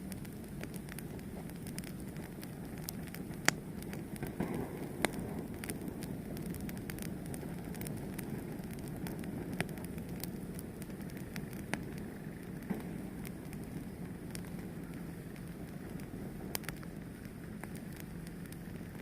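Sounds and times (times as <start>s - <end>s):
fire burning: 0.0s - 19.0s
fire crackling and popping: 0.0s - 19.0s.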